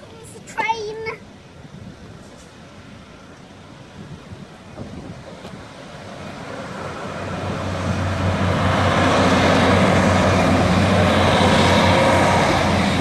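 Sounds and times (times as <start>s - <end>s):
train wheels rushing on rails: 4.4s - 13.0s
diesel engine hum: 5.1s - 13.0s.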